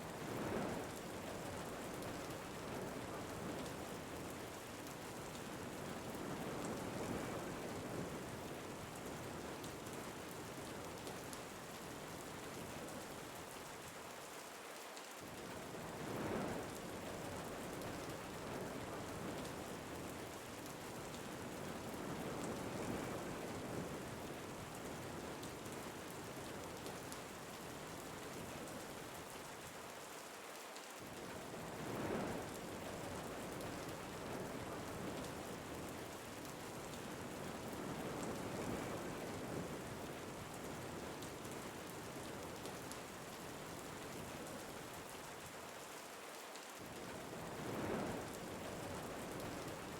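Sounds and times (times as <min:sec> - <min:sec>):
steady rain falling: 0:00.0 - 0:49.9
wind gusts: 0:15.7 - 0:25.3, 0:31.0 - 0:45.1, 0:46.8 - 0:49.9.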